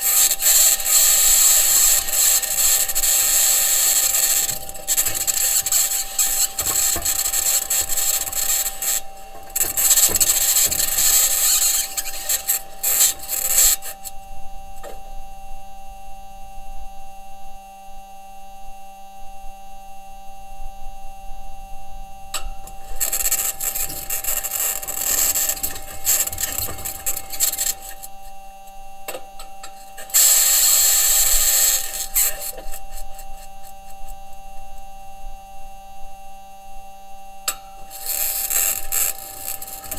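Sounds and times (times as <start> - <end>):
rover wheels grinding over ground: 0.0 - 14.1, 22.4 - 28.5, 29.1 - 34.3, 37.5 - 39.9
electrical hum: 0.0 - 17.7, 20.2 - 39.9.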